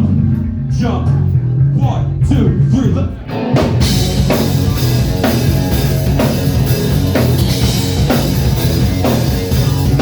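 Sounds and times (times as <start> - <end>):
bass guitar: 0.0 - 10.0
drum kit beat: 0.0 - 10.0
electric guitar: 3.2 - 10.0.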